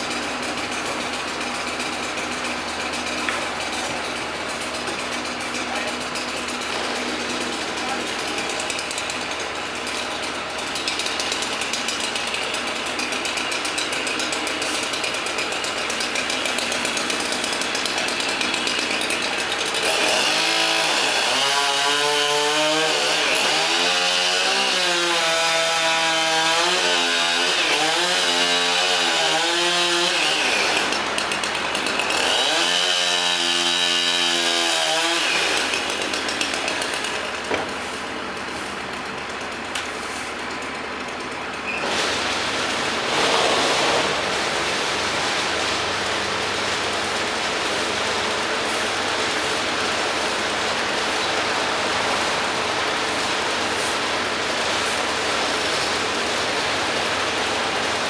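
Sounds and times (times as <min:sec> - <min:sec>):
steady mechanical noise: 0:00.0 - 0:20.4, 0:34.8 - 0:58.0
chainsaw cutting wood: 0:00.0 - 0:58.0.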